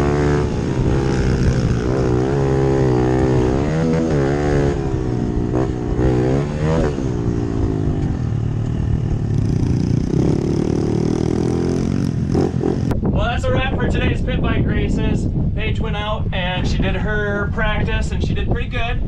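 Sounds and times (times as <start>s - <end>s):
pit bike engine revving: 0.0s - 13.0s.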